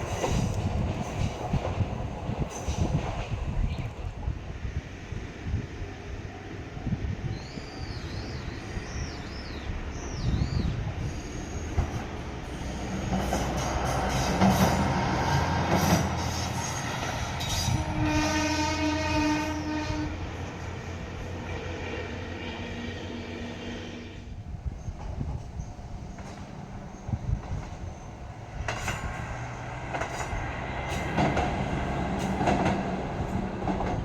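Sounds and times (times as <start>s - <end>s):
wheels clacking over rail joints: 0.0s - 4.2s, 11.7s - 17.8s, 24.8s - 34.0s
diesel railcar passing: 0.0s - 34.0s
train horn: 15.3s - 20.5s.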